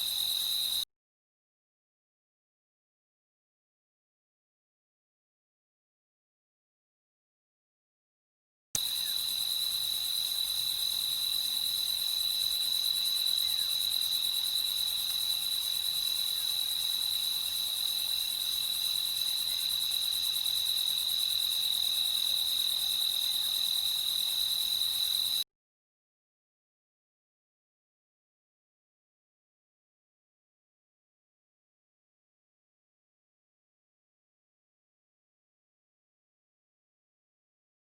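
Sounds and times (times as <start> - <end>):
crickets trilling: 0.0 - 0.8, 8.8 - 25.4.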